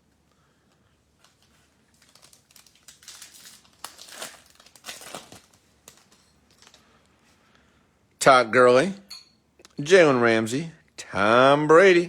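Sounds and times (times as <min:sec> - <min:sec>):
foil wrapper crinkling: 0:01.2 - 0:07.0.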